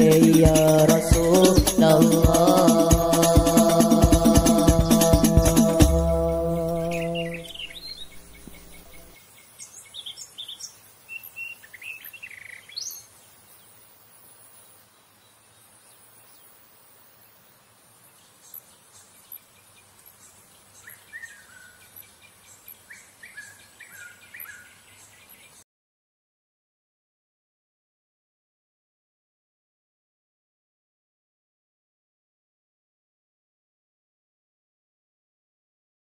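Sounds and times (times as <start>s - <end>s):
background music chord: 0.0s - 9.1s
birds chirping: 0.0s - 13.7s, 18.0s - 25.6s
faint steady hiss: 6.7s - 25.6s.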